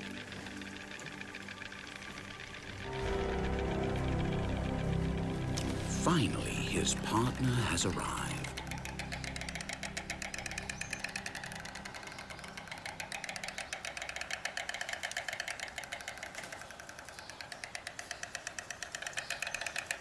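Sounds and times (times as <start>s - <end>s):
low steady hum: 0.0s - 13.5s
storks clattering bills: 0.0s - 20.0s.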